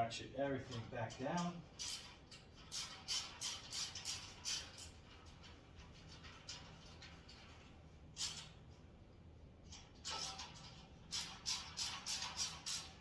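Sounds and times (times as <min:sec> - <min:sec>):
hand ratchet clicking: 0:00.7 - 0:07.6, 0:09.7 - 0:13.0.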